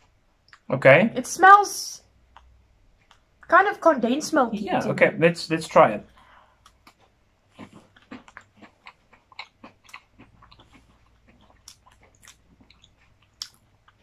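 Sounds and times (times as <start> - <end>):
people chewing dry biscuits: 2.3 - 3.5, 6.1 - 14.0.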